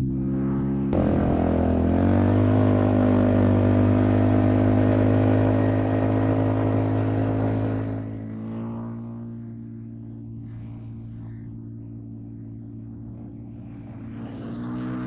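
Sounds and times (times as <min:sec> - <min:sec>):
atv engine revving: 0:00.0 - 0:08.8.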